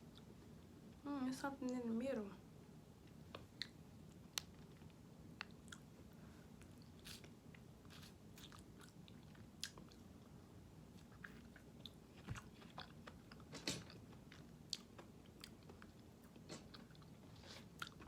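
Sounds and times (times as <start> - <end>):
person chewing candy: 11.0 - 18.0.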